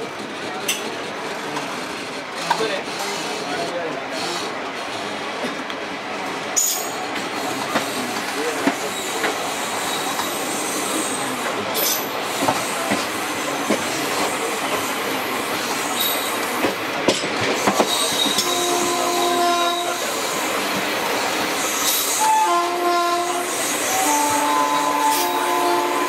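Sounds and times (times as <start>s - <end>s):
rush of train wheels on rail: 0.0s - 26.0s
train horn: 18.2s - 20.1s, 22.1s - 26.0s.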